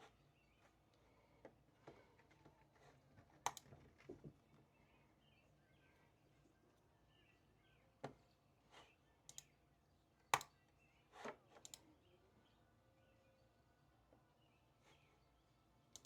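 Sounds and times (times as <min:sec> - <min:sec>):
light clicks and taps at desk: 0:03.3 - 0:04.4.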